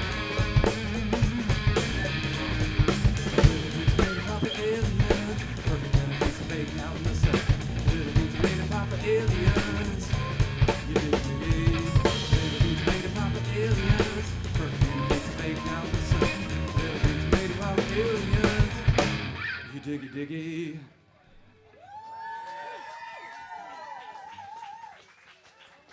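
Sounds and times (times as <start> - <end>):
rock band playing: 0.0 - 19.6.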